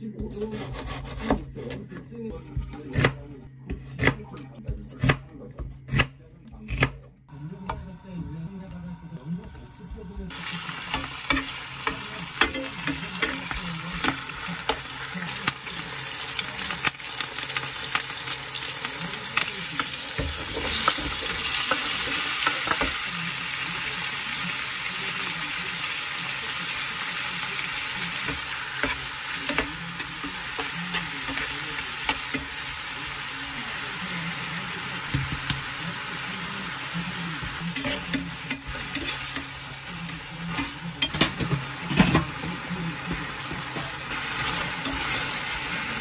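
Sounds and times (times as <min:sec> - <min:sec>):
meat and vegetables sizzling in pan: 0:08.9 - 0:46.0
tongs scraping a pan: 0:37.7 - 0:42.3, 0:44.4 - 0:45.4.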